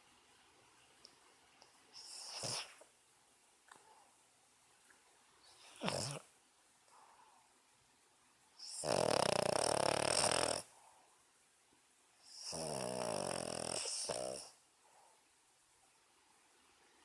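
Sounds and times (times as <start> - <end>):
dog snoring: 2.0 - 2.8, 5.6 - 6.3, 8.6 - 10.7, 12.2 - 14.6.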